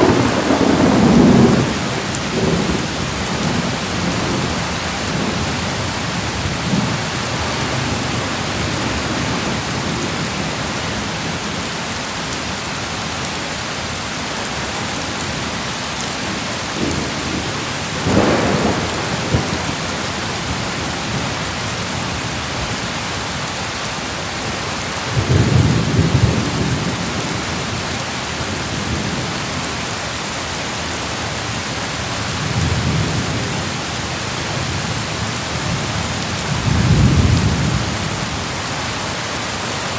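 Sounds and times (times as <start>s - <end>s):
rolling thunder: 0.0s - 10.0s, 16.2s - 21.4s
heavy rain: 0.0s - 39.9s.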